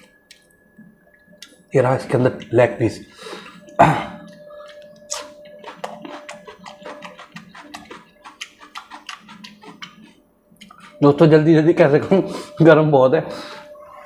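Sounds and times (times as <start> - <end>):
man chewing food: 0.0 - 1.6, 3.3 - 11.0
faint steady tone: 0.0 - 6.8, 10.2 - 14.0
wet mouth clicks and crunches: 4.2 - 10.8.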